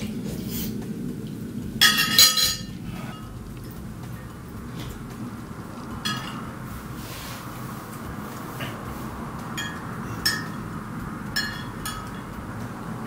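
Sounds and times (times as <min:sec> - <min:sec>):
low background hum: 0:00.0 - 0:13.0
utensils clinking against a bowl: 0:01.8 - 0:05.0, 0:06.0 - 0:06.6, 0:09.6 - 0:12.5.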